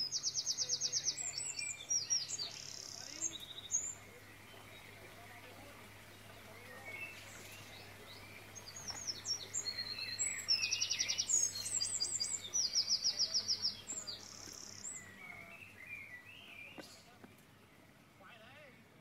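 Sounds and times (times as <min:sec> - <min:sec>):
rapid bird trills: 0:00.0 - 0:17.1
songbirds chirping and whistling: 0:00.0 - 0:19.0.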